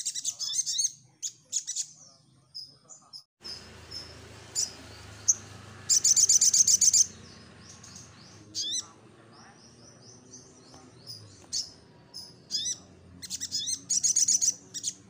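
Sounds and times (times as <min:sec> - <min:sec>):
bird chirping: 0:00.0 - 0:15.0
bird rattling trill: 0:03.4 - 0:08.8.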